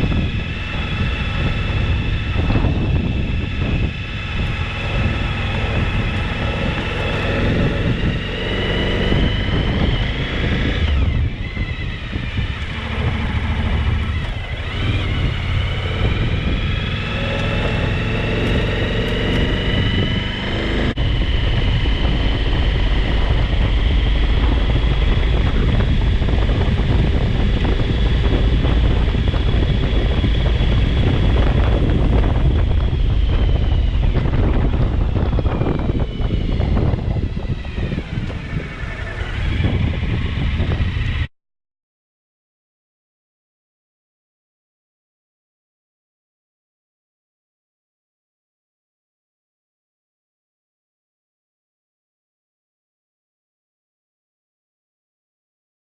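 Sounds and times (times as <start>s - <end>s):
motorcycle engine: 0.0s - 41.3s
wind noise on microphone: 0.0s - 41.3s.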